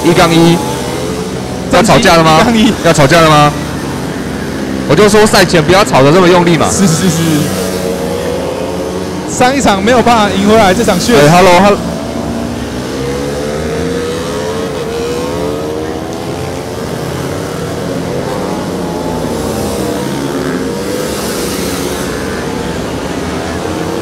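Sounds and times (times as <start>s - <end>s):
racing motorcycle engines revving: 0.0s - 24.0s.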